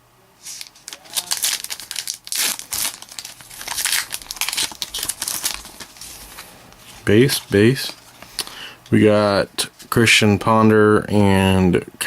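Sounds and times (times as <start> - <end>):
foil wrapper crinkling and tearing: 0.4 - 8.5.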